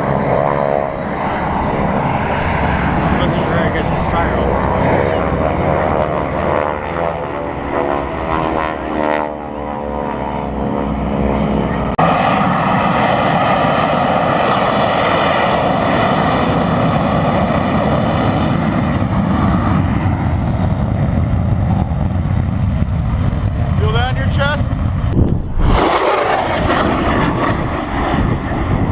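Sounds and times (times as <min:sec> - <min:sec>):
aircraft engine noise: 0:00.0 - 0:28.9.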